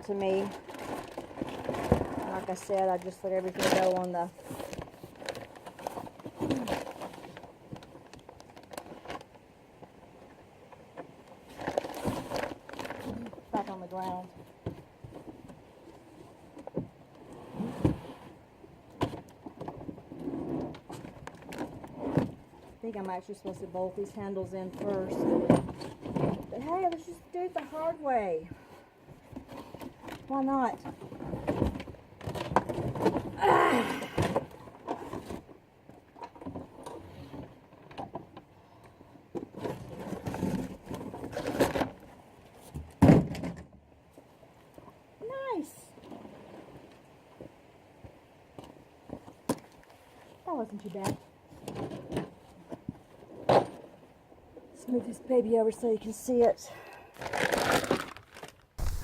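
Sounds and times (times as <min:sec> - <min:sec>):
lawnmower parts knocking: 0:58.8 - 0:59.0
loud thump: 0:58.8 - 0:59.0.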